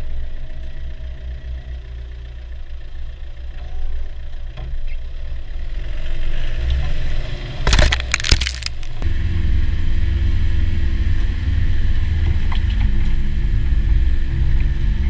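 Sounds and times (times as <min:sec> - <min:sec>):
cracking and crunching: 0:07.7 - 0:09.0.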